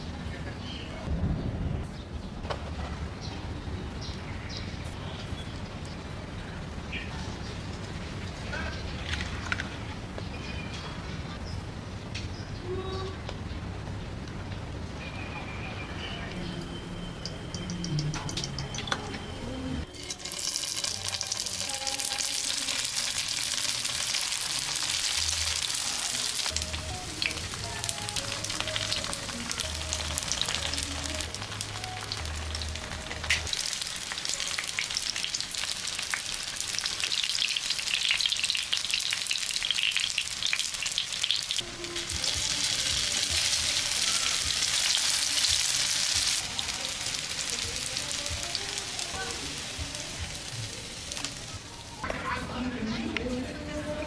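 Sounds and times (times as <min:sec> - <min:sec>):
dumplings sizzling in oil: 0:19.9 - 0:52.0.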